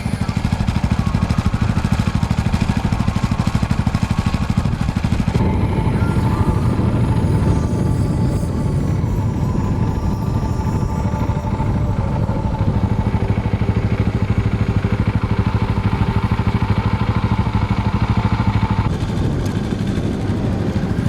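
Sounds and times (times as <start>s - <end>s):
higher steady tone: 0.0s - 19.1s.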